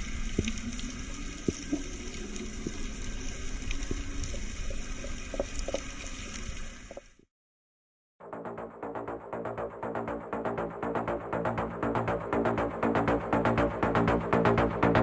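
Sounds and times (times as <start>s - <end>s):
water ambience: 0.0s - 7.3s
small clicks and pops: 0.1s - 7.2s.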